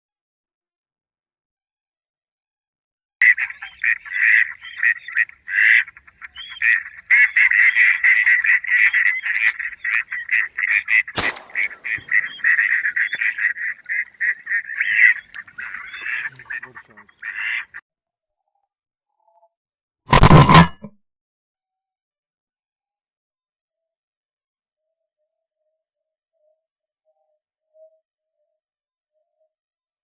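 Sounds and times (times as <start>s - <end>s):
duck quacking: 3.2s - 17.8s
sharp crack: 11.2s - 16.9s.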